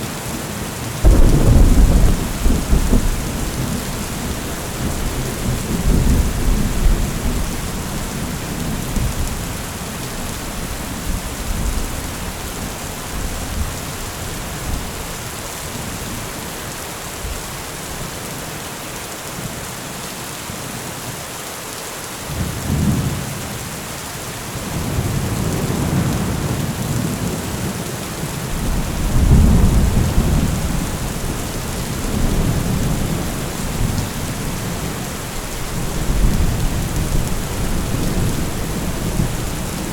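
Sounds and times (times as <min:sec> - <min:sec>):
rain hissing: 0:00.0 - 0:16.4, 0:28.4 - 0:39.9
low rolling thunder: 0:01.0 - 0:15.0, 0:28.5 - 0:39.9.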